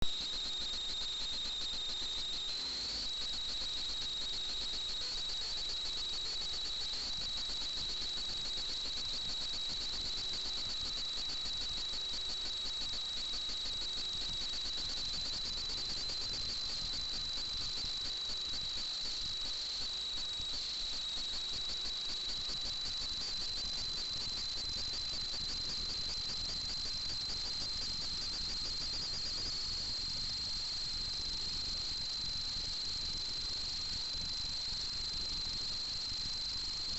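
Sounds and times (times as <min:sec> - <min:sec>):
drone motors whining: 0:01.4 - 0:06.0.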